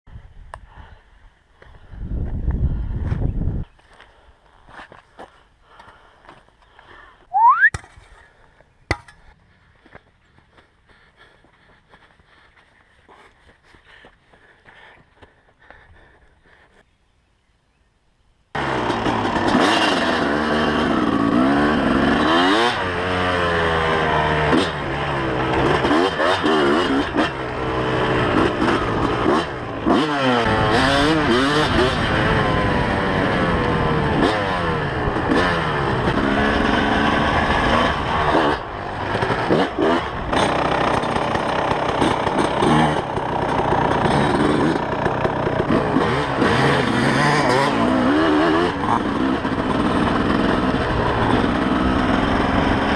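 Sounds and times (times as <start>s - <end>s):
two-stroke motorcycle engine revving: 18.6s - 52.9s.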